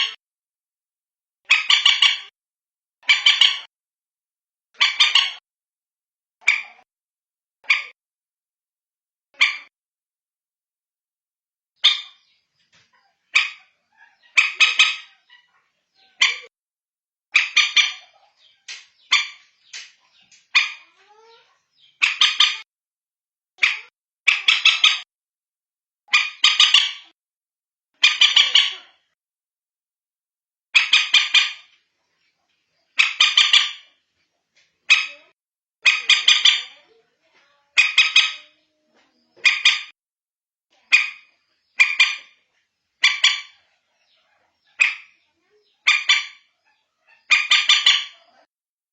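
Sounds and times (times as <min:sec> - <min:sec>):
moorhen calls: 0:01.5 - 0:02.3, 0:04.8 - 0:05.4, 0:12.9 - 0:16.5, 0:17.3 - 0:22.6, 0:26.1 - 0:27.1, 0:28.0 - 0:29.0, 0:33.0 - 0:33.9, 0:37.7 - 0:39.9, 0:43.0 - 0:48.5.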